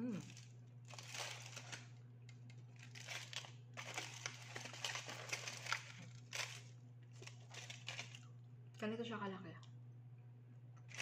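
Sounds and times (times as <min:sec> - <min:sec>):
crinkly wrap handling: 0:00.0 - 0:08.4
steady low hum: 0:00.0 - 0:11.0.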